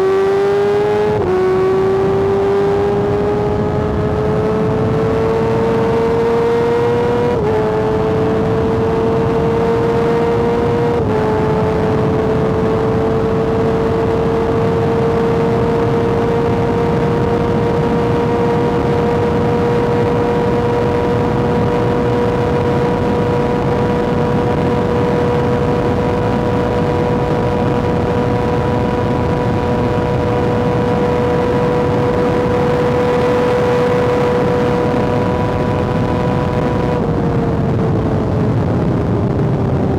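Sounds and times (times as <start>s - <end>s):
motorcycle engine at high revs: 0.0s - 39.9s
wind rush: 0.0s - 39.9s.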